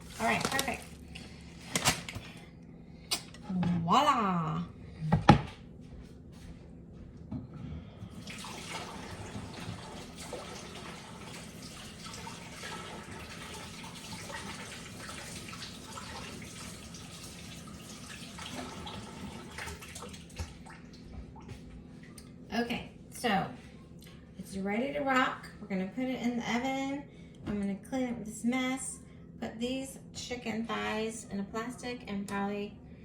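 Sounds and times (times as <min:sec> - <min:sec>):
tap water running into sink: 0:00.0 - 0:01.8, 0:08.2 - 0:21.6.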